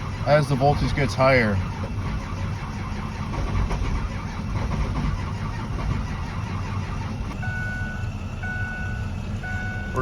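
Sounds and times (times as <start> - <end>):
diesel engine cranking and sputtering: 0.0 - 10.0
faint steady beep tone: 7.4 - 10.0.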